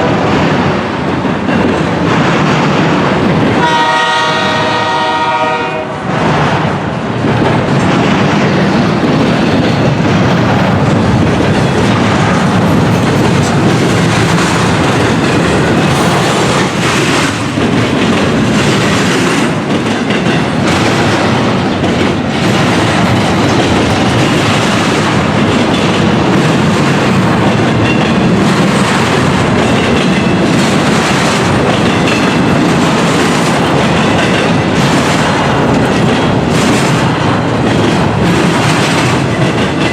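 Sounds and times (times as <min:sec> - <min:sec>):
freight train cars rumbling: 0:00.0 - 0:39.9
wheels clacking over rail joints: 0:00.0 - 0:39.9
locomotive horn blast: 0:03.6 - 0:06.1.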